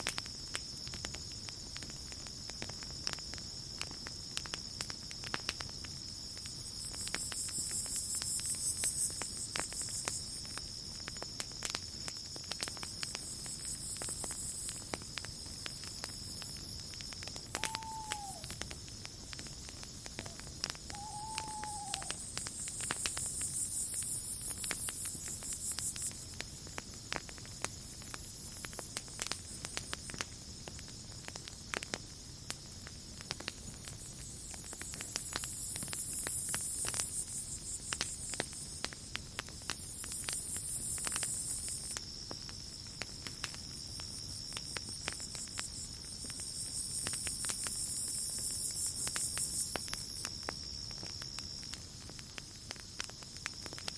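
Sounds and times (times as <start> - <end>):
campfire crackling and popping: 0.0 - 53.9
insects trilling: 0.1 - 53.9
insects chirping chorus: 0.2 - 53.9
whistled call: 17.5 - 18.6, 20.2 - 22.3.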